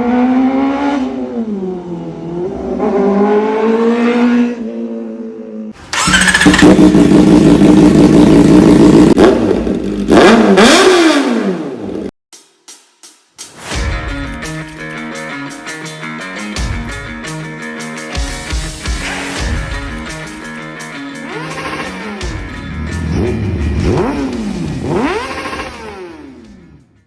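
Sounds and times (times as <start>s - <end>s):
motorcycle engine revving: 0.0s - 12.1s, 21.2s - 26.8s
exhaust cracks: 5.8s - 10.5s.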